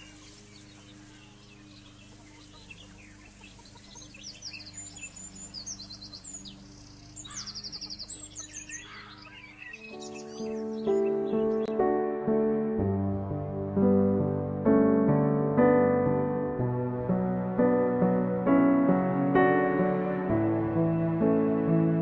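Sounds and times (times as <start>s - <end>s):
birds chirping in trills: 0.0s - 12.5s
soft background music: 0.0s - 22.0s.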